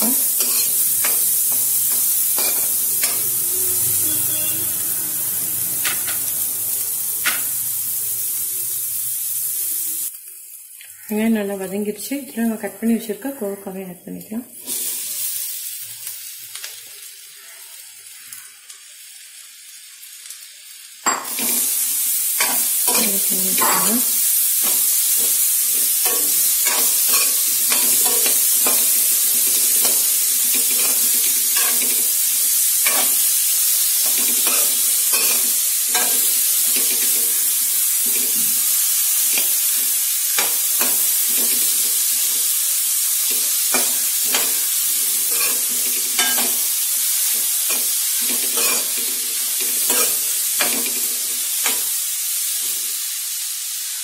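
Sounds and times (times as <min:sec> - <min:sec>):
vegetables sizzling in hot oil: 0:00.0 - 0:54.0
spatula scraping a pan: 0:00.4 - 0:03.3, 0:43.3 - 0:46.6, 0:47.2 - 0:49.1.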